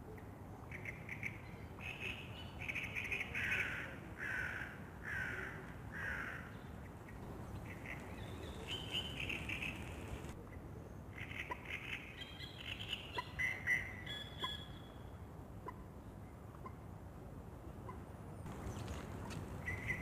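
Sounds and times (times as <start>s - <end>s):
low outdoor background: 0.0s - 20.0s
wild bird calling: 0.7s - 10.4s, 18.6s - 20.0s.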